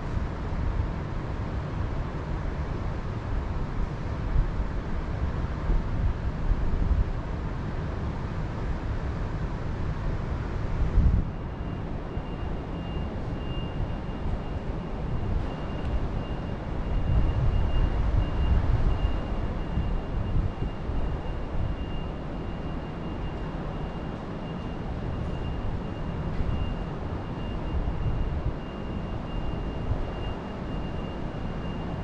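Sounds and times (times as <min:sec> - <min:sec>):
wind gusting on microphone: 0:10.7 - 0:23.0.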